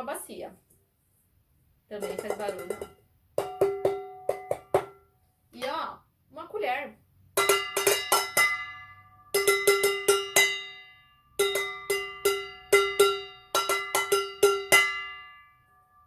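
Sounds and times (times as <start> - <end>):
spoon beating on a basin: 1.9 - 5.1, 7.4 - 15.4.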